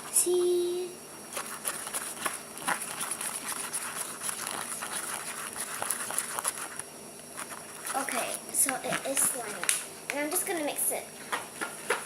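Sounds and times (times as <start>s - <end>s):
slime squelching while stirred: 1.3s - 9.8s.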